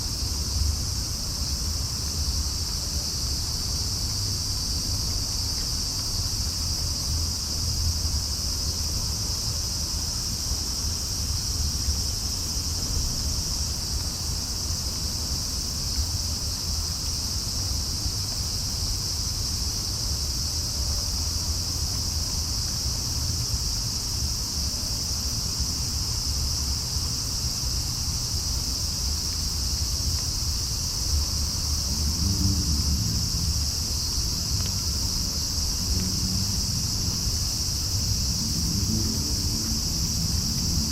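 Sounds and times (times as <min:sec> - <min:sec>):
night insects chirring: 0:00.0 - 0:40.9
low steady rumble: 0:30.8 - 0:40.9.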